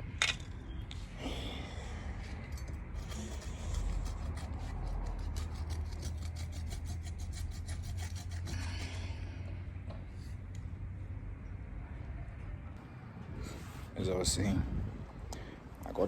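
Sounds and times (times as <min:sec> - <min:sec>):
blade sawing through rubber: 0:02.8 - 0:09.1.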